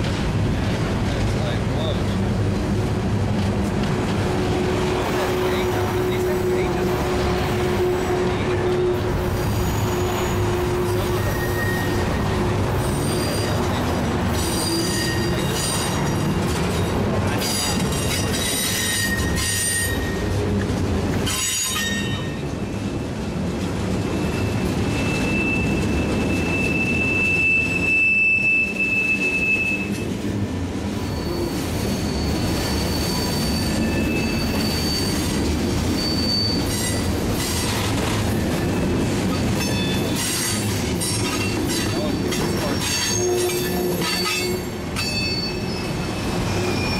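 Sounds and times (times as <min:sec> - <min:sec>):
freight train rumble: 0:00.0 - 0:46.9
train wheels squealing: 0:09.3 - 0:20.3, 0:21.2 - 0:23.0, 0:24.0 - 0:30.2, 0:30.9 - 0:46.9.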